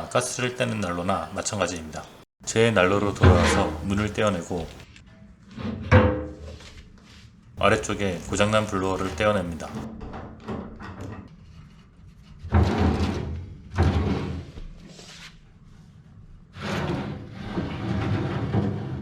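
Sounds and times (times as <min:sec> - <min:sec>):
metal rubbing and scraping: 0:02.8 - 0:04.8
sheet metal clunks and scrapes: 0:02.9 - 0:04.8, 0:12.4 - 0:14.7, 0:16.6 - 0:19.0.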